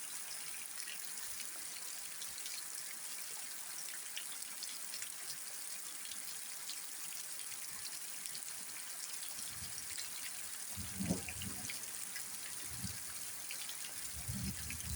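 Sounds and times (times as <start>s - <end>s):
rain falling: 9.3s - 14.9s.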